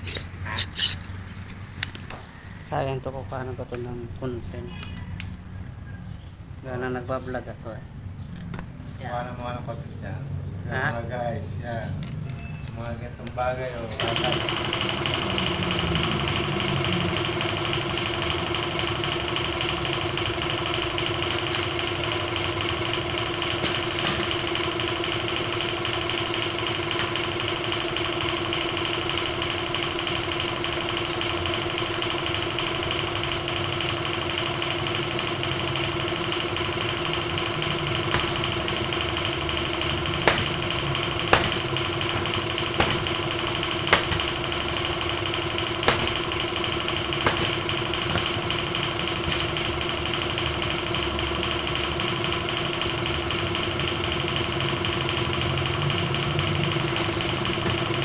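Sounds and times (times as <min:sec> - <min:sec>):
motor humming: 0:00.0 - 0:01.5, 0:14.0 - 0:58.0.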